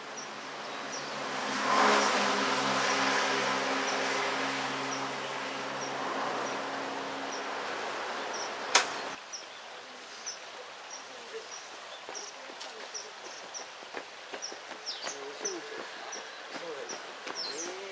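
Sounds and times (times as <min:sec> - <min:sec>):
passing vehicle engine hum: 0:00.0 - 0:09.2
sharp click: 0:08.7 - 0:09.0.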